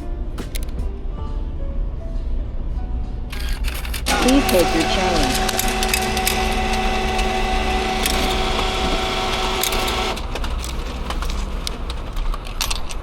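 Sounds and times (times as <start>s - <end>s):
scattered clicks: 3.3s - 13.0s
machine hum with held tones: 3.4s - 10.4s.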